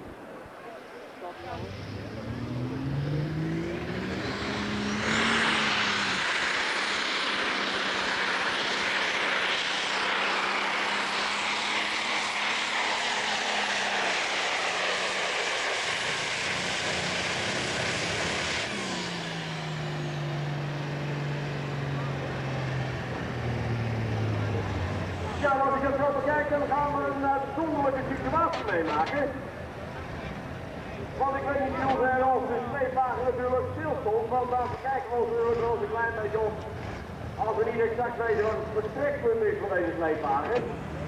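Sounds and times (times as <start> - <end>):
tractor engine at full power: 0.9 - 41.0.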